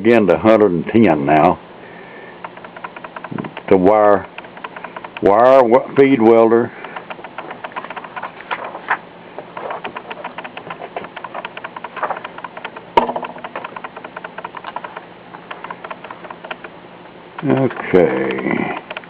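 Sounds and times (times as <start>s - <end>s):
sharp click: 2.4s - 5.4s, 6.8s - 8.8s, 9.6s - 16.8s, 17.4s - 19.0s
book pages rustling: 6.9s - 12.7s.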